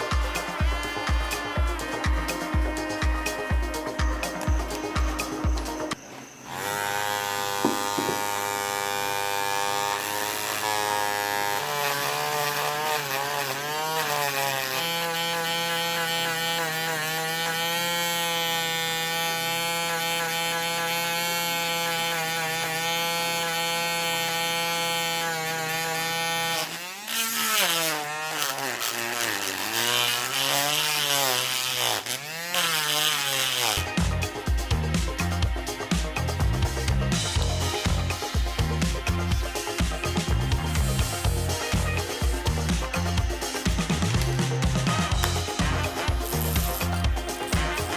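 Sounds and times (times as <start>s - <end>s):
small motor whining: 0.0s - 47.9s.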